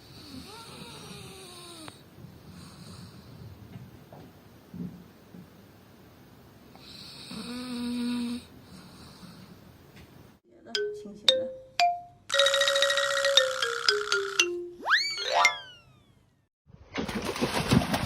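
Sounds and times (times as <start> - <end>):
pet snore-like breath: 0.0 - 3.6, 6.8 - 9.7
plucked notes: 13.4 - 15.8.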